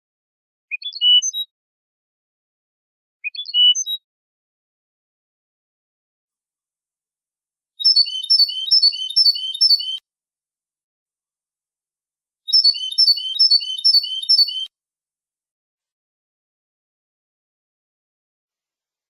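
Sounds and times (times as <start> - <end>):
finch song: 0.7 - 1.5, 3.2 - 4.0, 7.8 - 10.0, 12.5 - 14.7.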